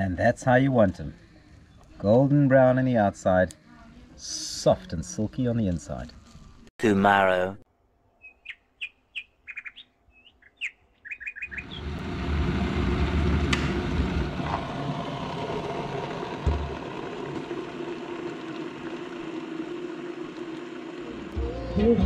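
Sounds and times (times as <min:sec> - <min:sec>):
small birds chirping: 0:08.2 - 0:12.0
outdoor rushing rumble: 0:11.5 - 0:21.4.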